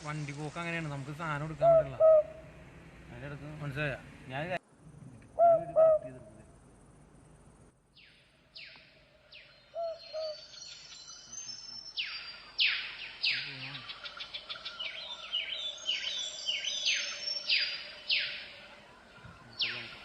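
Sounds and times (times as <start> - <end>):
birds calling: 0.0 - 4.6, 8.0 - 20.0
bird trill: 8.0 - 20.0.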